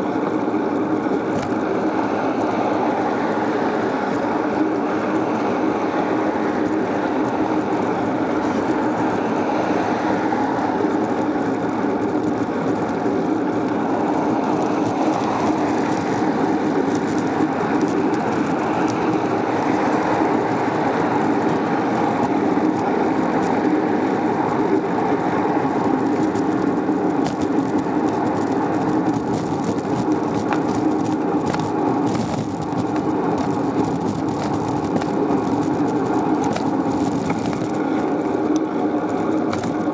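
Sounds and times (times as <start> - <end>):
bicycle tyre and road rumble: 0.0 - 39.9
wind on microphone: 0.0 - 39.9.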